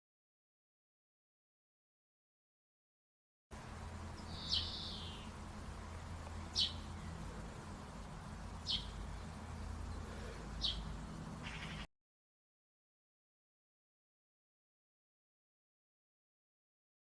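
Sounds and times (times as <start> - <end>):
steady low hum: 3.5 - 11.9
bird calling high-pitched: 4.2 - 5.4, 6.5 - 7.2, 8.6 - 9.0, 10.1 - 11.9.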